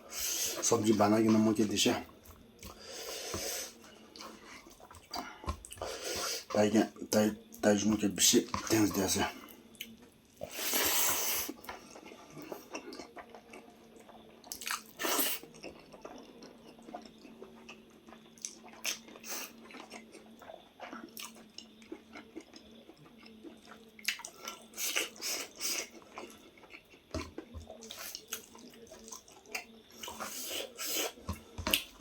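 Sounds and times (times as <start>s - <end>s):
person chewing and biting food: 9.8s - 32.0s.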